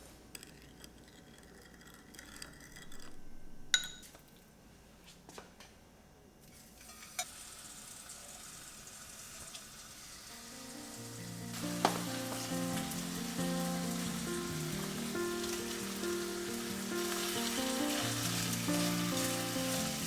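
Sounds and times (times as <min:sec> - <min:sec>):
food sizzling in a pan: 0:06.5 - 0:20.0
soft background music: 0:10.0 - 0:20.0.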